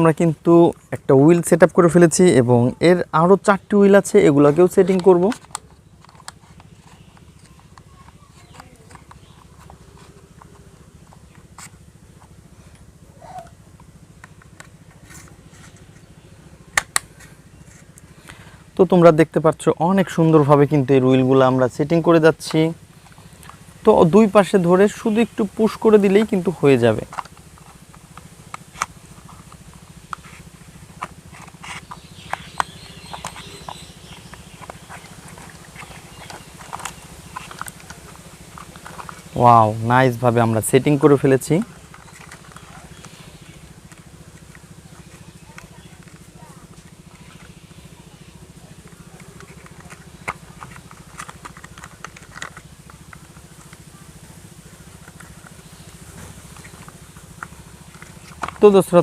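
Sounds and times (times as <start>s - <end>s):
steady low hum: 0.0s - 59.0s
plastic toy parts clicking: 31.0s - 39.2s, 49.2s - 53.8s, 56.6s - 59.0s.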